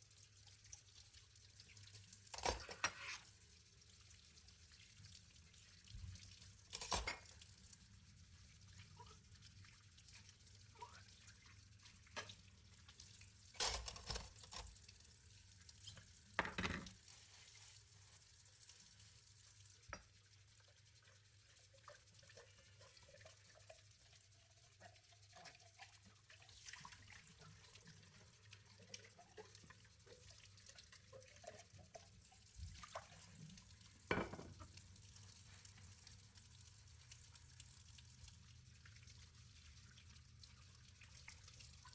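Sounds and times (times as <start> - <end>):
faint water trickle: 0.0 - 41.9
dishes clinking: 2.3 - 3.2, 6.8 - 7.4, 13.6 - 14.7, 16.4 - 17.0, 34.1 - 34.8.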